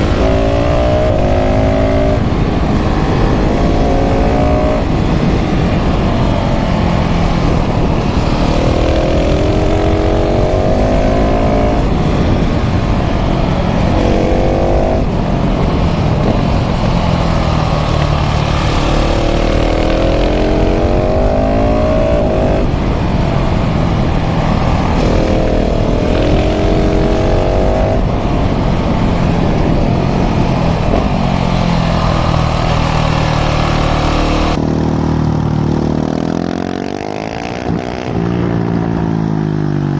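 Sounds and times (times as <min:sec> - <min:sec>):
wind rushing: 0:00.0 - 0:34.8
motorcycle engine accelerating: 0:00.0 - 0:39.9.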